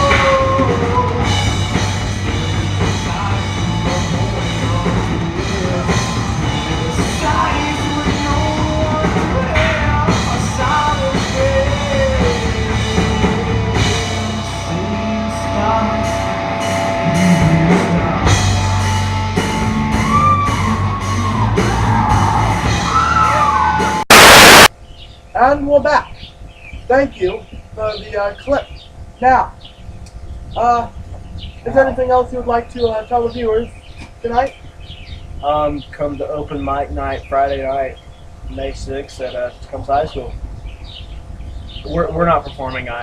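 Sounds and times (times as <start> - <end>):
rock song with singer and band: 0.0 - 24.7.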